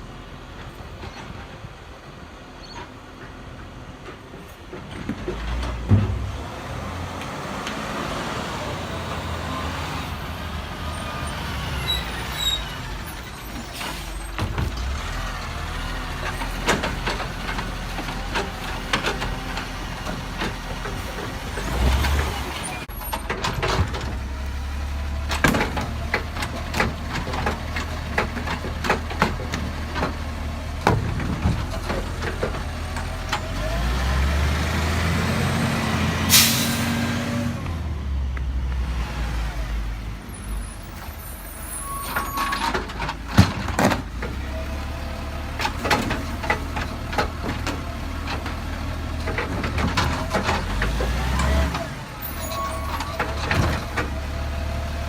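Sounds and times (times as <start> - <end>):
diesel engine running and revving: 5.0 - 55.0
air brake hiss: 36.3 - 36.9.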